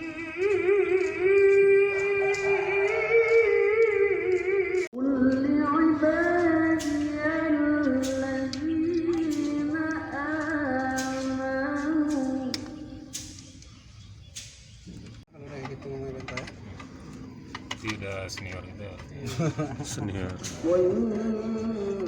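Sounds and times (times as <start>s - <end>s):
person singing long notes: 0.0s - 13.0s, 20.6s - 22.0s.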